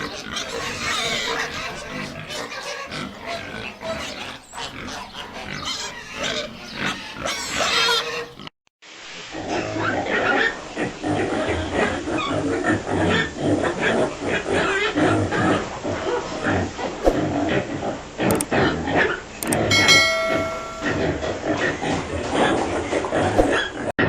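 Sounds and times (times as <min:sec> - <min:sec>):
pigs grunting and squealing: 0:00.0 - 0:08.5, 0:09.4 - 0:19.0.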